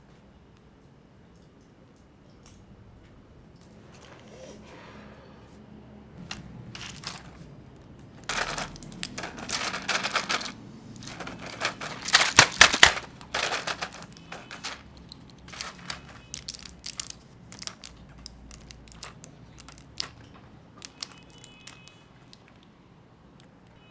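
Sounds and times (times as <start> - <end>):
plastic packaging crinkling: 6.2 - 7.5, 8.3 - 22.6.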